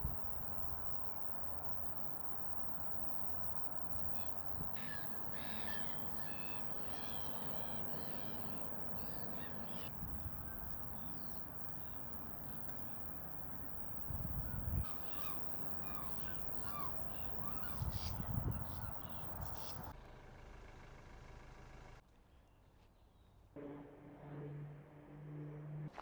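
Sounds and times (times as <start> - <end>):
wild birds calling: 0.0 - 19.9
steady background noise: 0.0 - 20.0.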